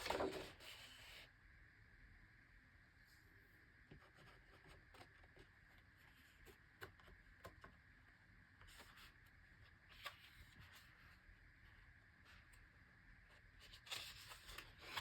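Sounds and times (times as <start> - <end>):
paper pages rustling: 0.0 - 0.9, 13.6 - 15.0
faint steady hum: 0.0 - 15.0.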